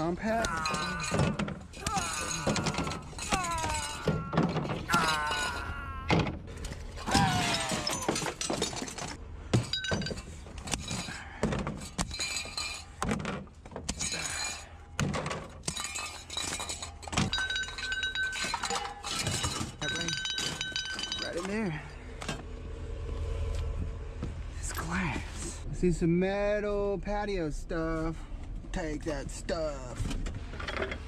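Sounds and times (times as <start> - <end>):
junk being handled and loaded: 0.0 - 22.5, 28.4 - 31.0
glass clinking: 0.5 - 5.7, 7.1 - 11.2, 15.6 - 21.6.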